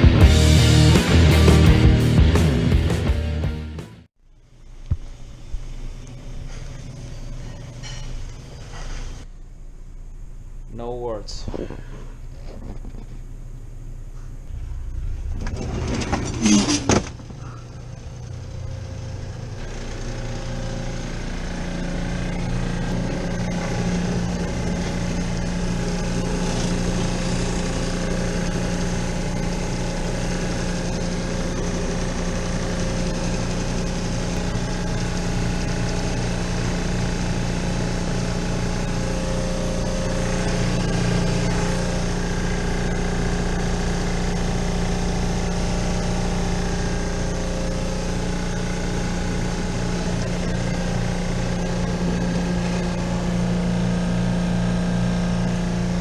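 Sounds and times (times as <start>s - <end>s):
hvac equipment humming: 4.3s - 56.0s
loud clatter: 14.5s - 46.0s.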